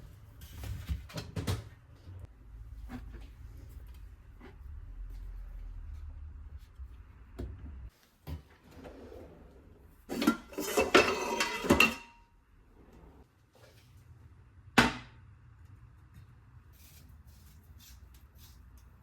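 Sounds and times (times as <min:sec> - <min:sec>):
dishes and utensils clattering: 0:10.1 - 0:12.2
ring of metal or ceramic: 0:10.5 - 0:12.2.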